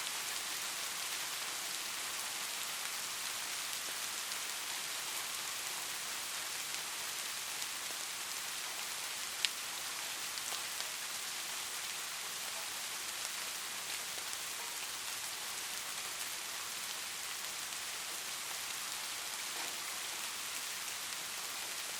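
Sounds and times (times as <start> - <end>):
light rain falling: 0.0 - 21.9.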